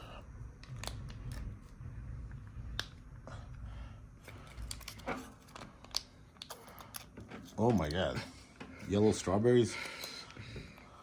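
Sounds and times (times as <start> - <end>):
faint low hum: 0.0 - 11.0
packet crinkling and clicking: 4.6 - 7.1.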